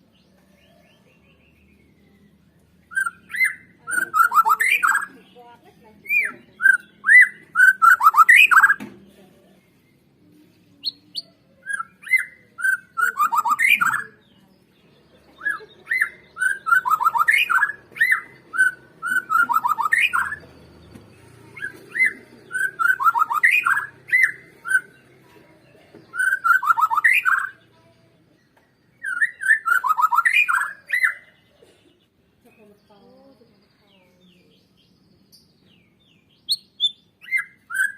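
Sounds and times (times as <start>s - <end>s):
bird singing whistled notes: 0.1s - 5.2s, 6.0s - 8.8s, 10.8s - 14.2s, 15.4s - 20.9s, 21.5s - 25.0s, 26.1s - 27.7s, 28.5s - 31.5s, 34.2s - 37.9s.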